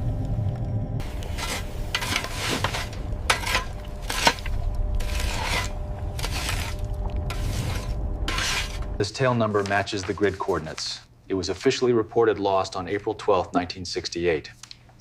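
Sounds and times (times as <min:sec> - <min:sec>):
steady low rumble: 0:00.0 - 0:09.2
scraping rubbing strokes: 0:01.0 - 0:10.7.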